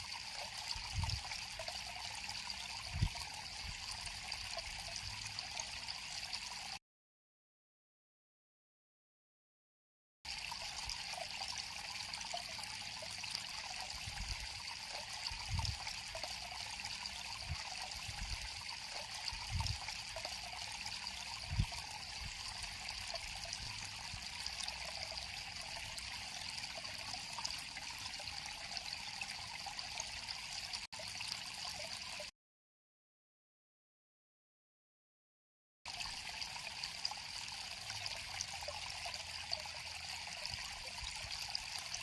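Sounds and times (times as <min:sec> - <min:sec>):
river water flowing: 0:35.9 - 0:42.0.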